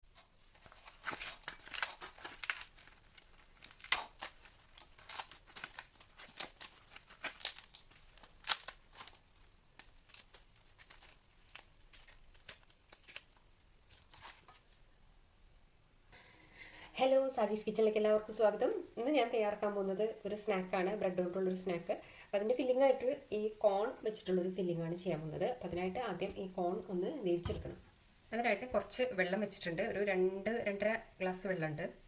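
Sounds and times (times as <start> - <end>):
crinkling and tearing rustles: 0.1 - 14.8.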